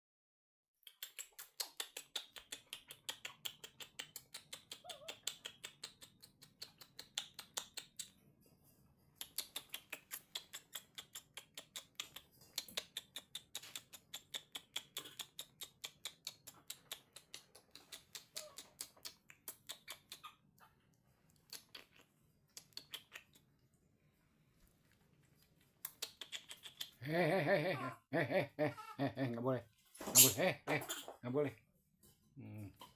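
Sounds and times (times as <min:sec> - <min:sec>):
baby monkey sucking milk: 0:00.8 - 0:08.1, 0:09.2 - 0:20.4, 0:21.3 - 0:23.6, 0:24.8 - 0:27.0
monkey vocal sound: 0:00.8 - 0:08.1, 0:09.2 - 0:20.8, 0:21.4 - 0:23.5, 0:25.8 - 0:31.3.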